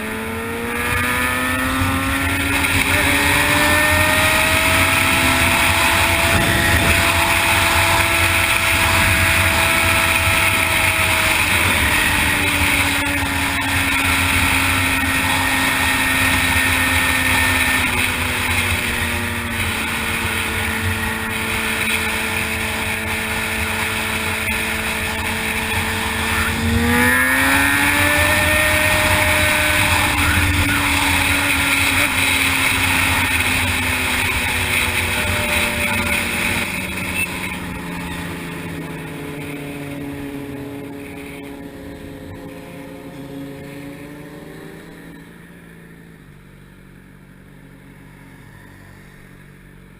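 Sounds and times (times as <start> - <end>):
motorcycle engine running: 0.0 - 49.9
wind noise: 0.6 - 37.8.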